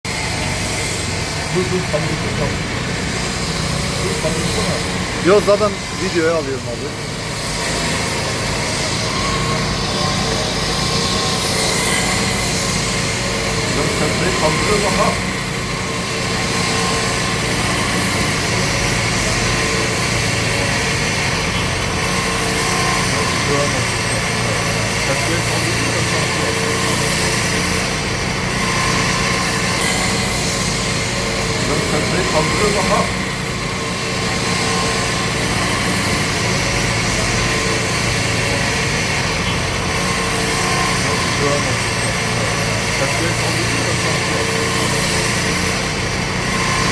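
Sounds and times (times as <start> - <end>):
diesel engine running: 0.0 - 46.9
constant rushing noise: 0.1 - 46.9.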